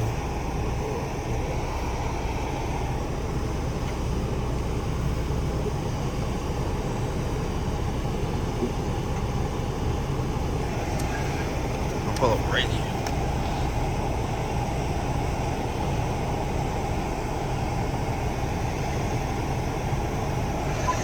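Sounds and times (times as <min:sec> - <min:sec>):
car engine and tyres rumbling: 0:00.0 - 0:21.0.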